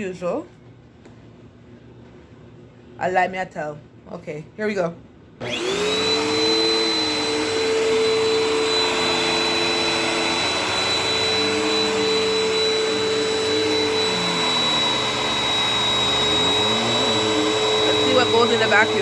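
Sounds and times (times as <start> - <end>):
vacuum cleaner on carpet: 5.4 - 19.0.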